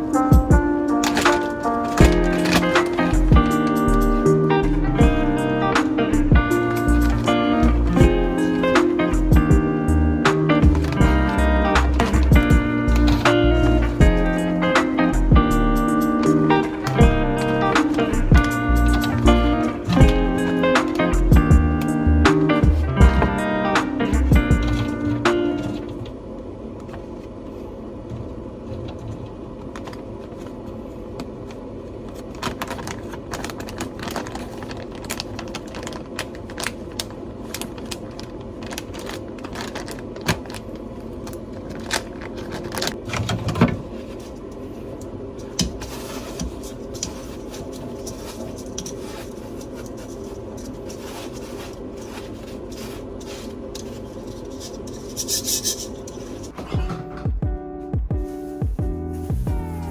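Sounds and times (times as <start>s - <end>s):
steady hum: 0.0s - 33.2s
clicks taps and scrapes of objects: 0.9s - 4.4s.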